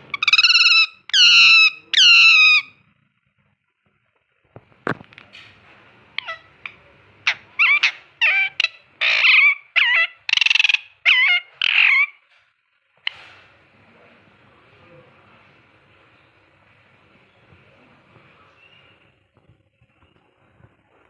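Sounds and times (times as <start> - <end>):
parrot squawking: 0.0 - 2.8, 6.1 - 12.2.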